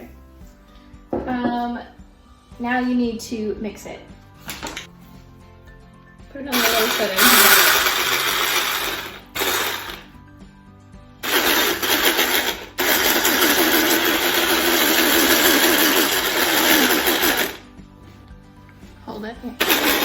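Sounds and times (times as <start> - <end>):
electric hand mixer beating batter: 6.5 - 10.1, 11.2 - 17.7, 19.6 - 20.0.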